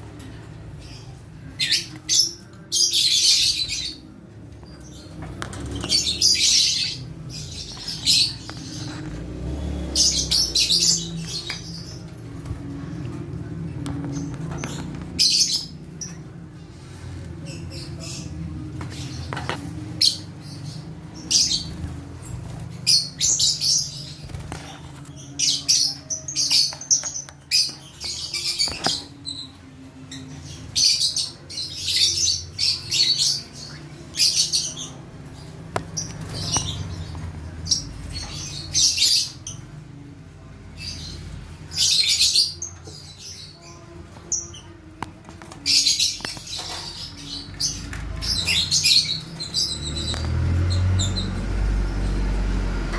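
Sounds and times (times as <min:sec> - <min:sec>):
lovebirds chirping: 0:00.1 - 0:40.1, 0:40.7 - 0:52.9.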